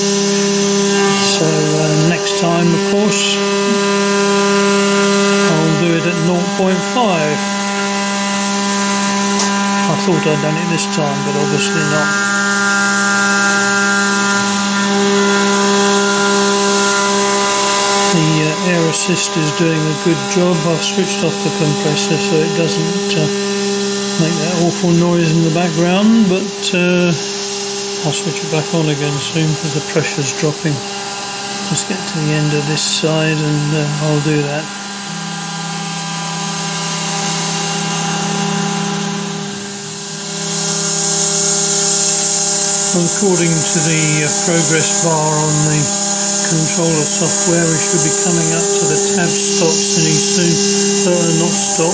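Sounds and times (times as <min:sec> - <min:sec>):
cnc mill spindle whine: 0:00.0 - 0:51.9
air jet hissing: 0:40.0 - 0:51.9.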